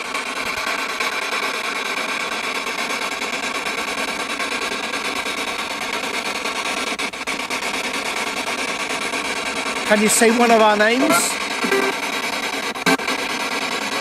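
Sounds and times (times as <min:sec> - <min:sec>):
faint steady tones: 0:07.0 - 0:13.3
radio static rush: 0:07.3 - 0:13.5.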